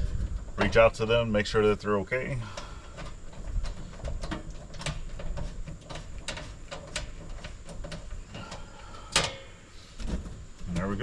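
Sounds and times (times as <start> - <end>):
clicks and scrapes on breaker panel: 2.5 - 11.0.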